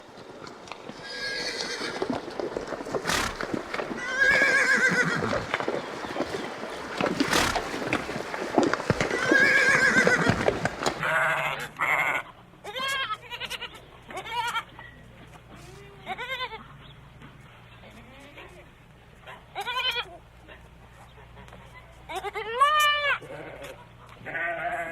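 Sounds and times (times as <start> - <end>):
horse whinnying: 1.0 - 2.2, 2.9 - 5.7, 6.8 - 8.2, 8.9 - 12.2
goats or sheep bleating: 9.1 - 14.7, 22.1 - 24.9.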